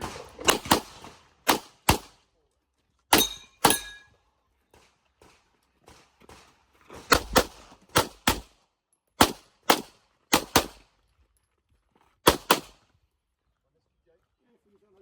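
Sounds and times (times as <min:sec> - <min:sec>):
pistol gunshots in pairs: 0:00.0 - 0:02.2, 0:03.1 - 0:04.0, 0:04.7 - 0:08.6, 0:09.2 - 0:10.8, 0:12.2 - 0:12.8.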